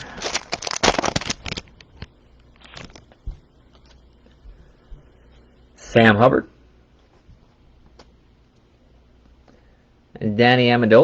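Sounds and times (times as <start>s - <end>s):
foil wrapper crinkling and tearing: 0.0s - 3.2s.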